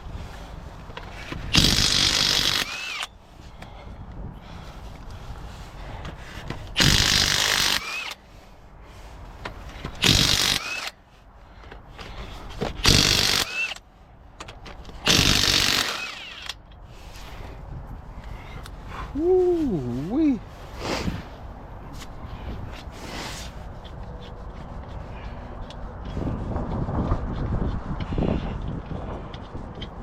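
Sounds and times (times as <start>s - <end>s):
impact wrench spinning: 1.3s - 3.1s, 6.8s - 8.2s, 9.9s - 11.0s, 12.7s - 13.8s, 15.0s - 16.6s.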